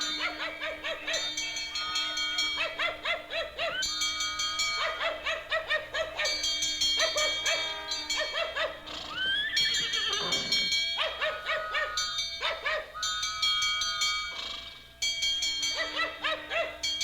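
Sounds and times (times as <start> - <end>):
clanging bell: 0.0 - 3.0, 3.8 - 5.0, 6.2 - 11.0, 11.9 - 17.0
dog barking rapidly: 0.1 - 1.4, 2.5 - 4.0, 4.6 - 13.2, 15.7 - 16.9
horse whinnying: 9.0 - 12.1.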